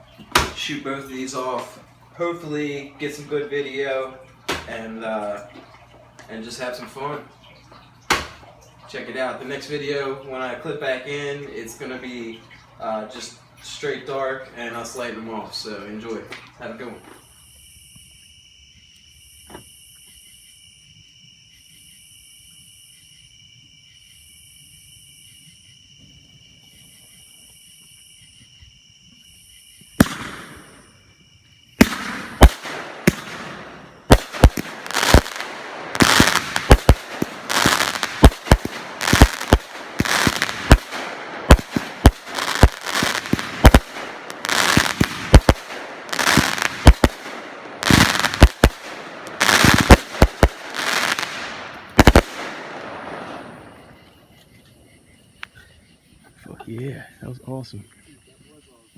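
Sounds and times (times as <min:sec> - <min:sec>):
firework bangs: 0:08.1 - 0:08.6, 0:29.9 - 0:31.1, 0:31.7 - 0:54.1
firework crackling: 0:30.0 - 0:31.0, 0:31.8 - 0:53.9
firework hiss: 0:30.0 - 0:31.0, 0:31.8 - 0:53.9.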